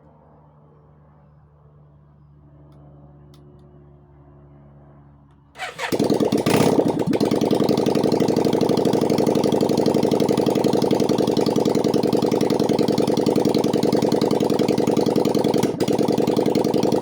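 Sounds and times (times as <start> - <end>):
motorcycle engine running loud: 5.6 - 17.0.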